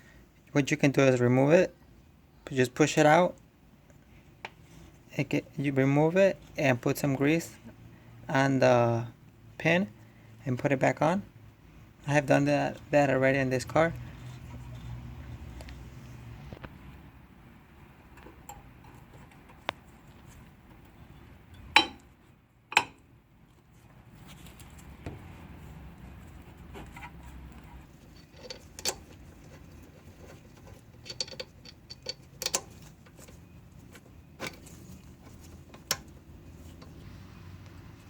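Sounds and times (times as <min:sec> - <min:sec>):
metal tools clinking: 0:30.2 - 0:33.4.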